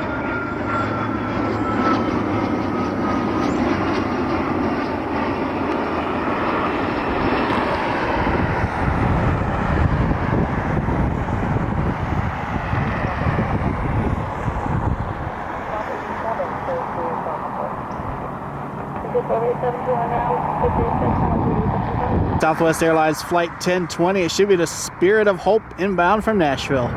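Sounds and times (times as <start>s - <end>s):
jet engines passing: 0.0s - 26.9s
deep rumble: 19.7s - 22.4s.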